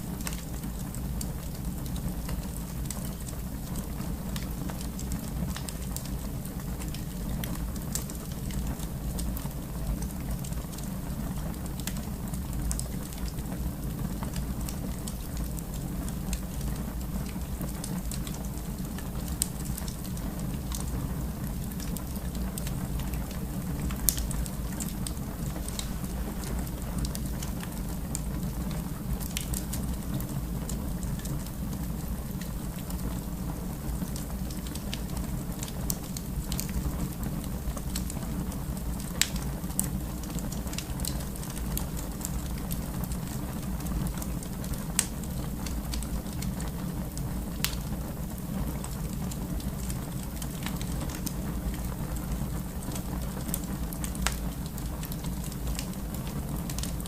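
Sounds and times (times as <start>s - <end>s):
fire crackling in a fireplace: 0.0s - 57.0s.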